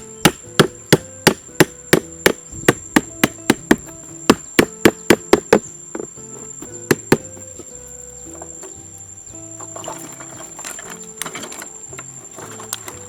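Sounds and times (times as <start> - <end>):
sharp strikes on wood: 0.0 - 7.7
background music: 0.0 - 13.0.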